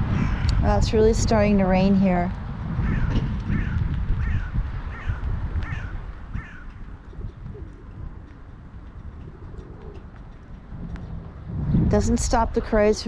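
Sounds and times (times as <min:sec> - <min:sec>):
steady low rumble: 0:00.0 - 0:13.0
crow cawing: 0:00.1 - 0:00.6, 0:02.8 - 0:06.8.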